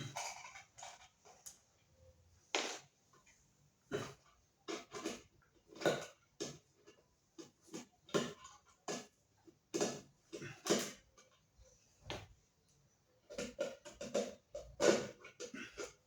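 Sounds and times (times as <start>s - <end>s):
plastic parts clicking and rattling: 0.0s - 1.6s.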